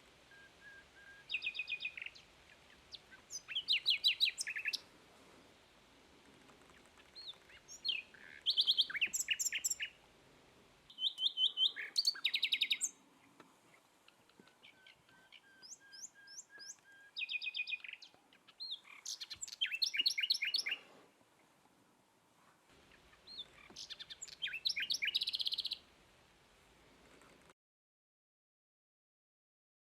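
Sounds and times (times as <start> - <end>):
small bird chirping: 0.7 - 4.8, 6.6 - 10.0, 10.9 - 20.9, 22.8 - 25.8.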